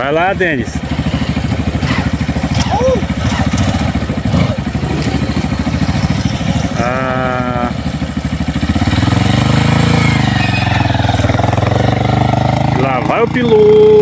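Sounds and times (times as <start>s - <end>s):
dirt bike engine idling and revving: 0.0s - 14.0s
wavering high call: 9.8s - 11.6s.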